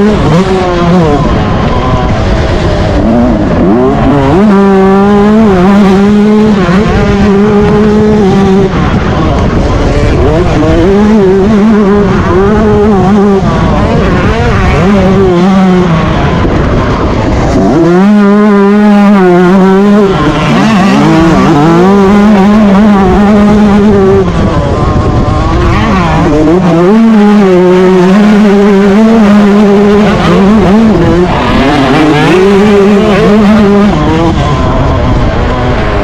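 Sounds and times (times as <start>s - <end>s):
two-stroke motocross engine revving: 0.0s - 36.0s.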